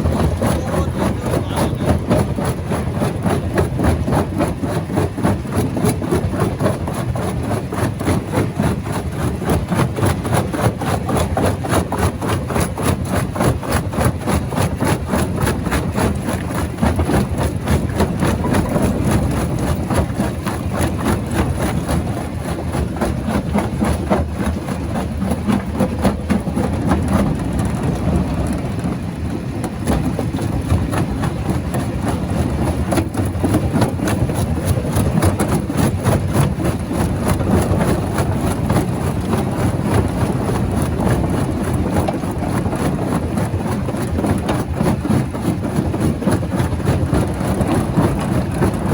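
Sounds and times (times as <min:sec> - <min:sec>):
rock crusher machine drone: 0:00.0 - 0:05.6.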